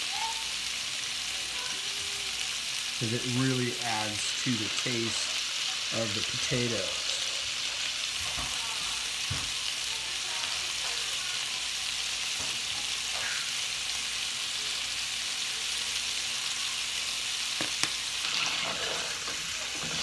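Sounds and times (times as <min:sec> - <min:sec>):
potatoes sizzling in oil: 0:00.0 - 0:20.0.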